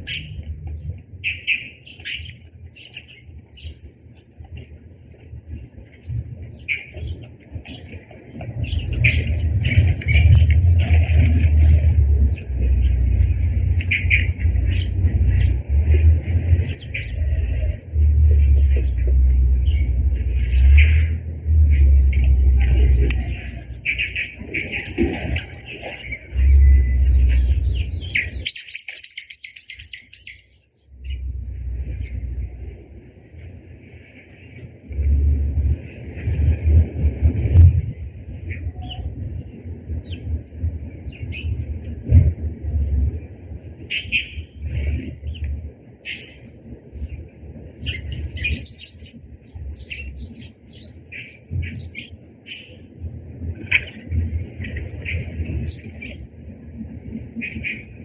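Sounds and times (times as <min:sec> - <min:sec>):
small birds chirping: 0:00.0 - 0:32.8, 0:41.0 - 0:42.2, 0:42.8 - 0:52.9, 0:53.7 - 0:56.3
low rumble: 0:08.4 - 0:28.6, 0:29.8 - 0:45.9.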